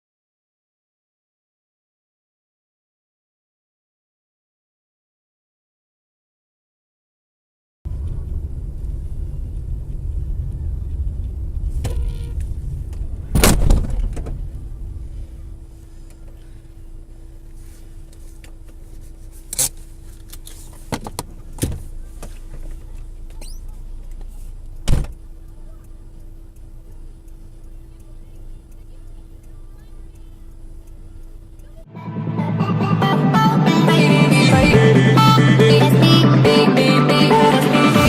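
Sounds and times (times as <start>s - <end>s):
car road and engine rumble: 7.9s - 32.0s
loud sharp impact thump: 13.3s - 14.4s, 24.9s - 25.1s.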